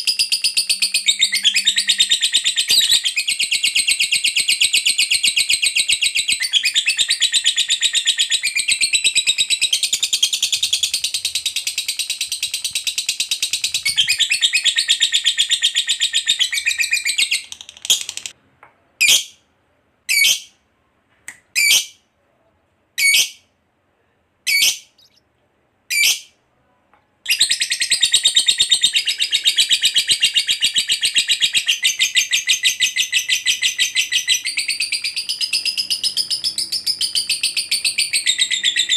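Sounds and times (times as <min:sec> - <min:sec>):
lovebird chattering trill: 0:00.0 - 0:18.3.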